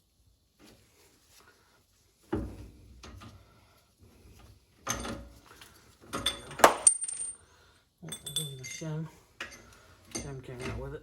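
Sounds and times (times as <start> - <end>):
metallic clatter and ring: 6.1 - 7.4, 8.0 - 10.4.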